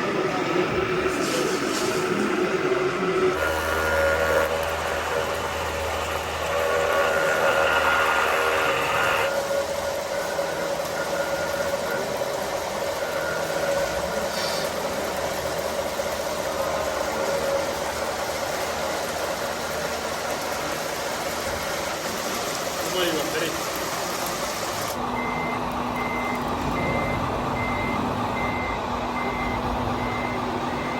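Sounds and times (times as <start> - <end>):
bright high whine: 0.0 - 20.0
mechanical drone: 0.0 - 23.6
steady motor whine: 0.0 - 30.9.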